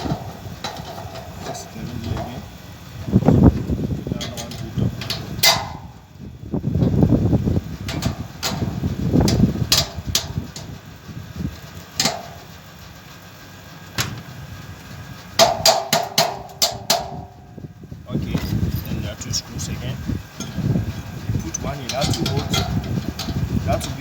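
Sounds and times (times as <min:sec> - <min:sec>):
metal parts knocking and clinking: 0:00.0 - 0:02.3, 0:18.2 - 0:19.4, 0:21.4 - 0:24.0
sharp metallic clinks: 0:18.2 - 0:24.0.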